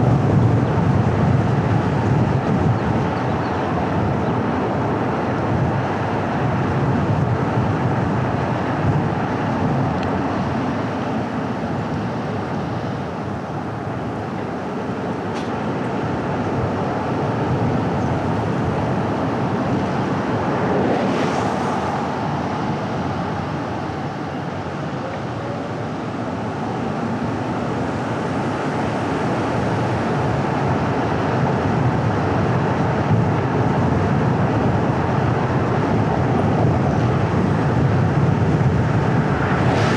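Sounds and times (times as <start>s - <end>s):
car tyre and engine noise: 0.0s - 39.9s.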